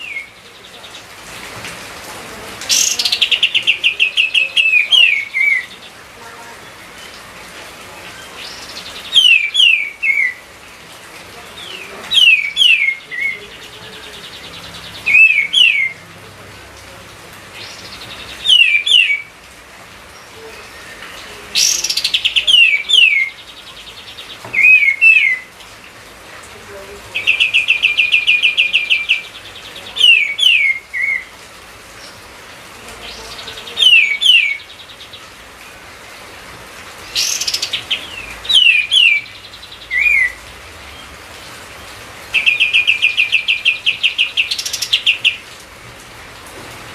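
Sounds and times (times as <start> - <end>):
bird whistling phrases: 8.5 - 10.4, 15.1 - 16.0, 18.4 - 19.3, 24.5 - 25.5, 39.9 - 40.4.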